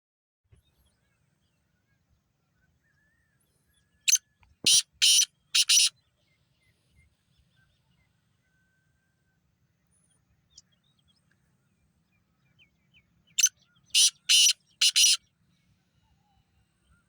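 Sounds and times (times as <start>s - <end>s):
francolin harsh grating call: 4.1s - 5.9s, 14.0s - 15.2s.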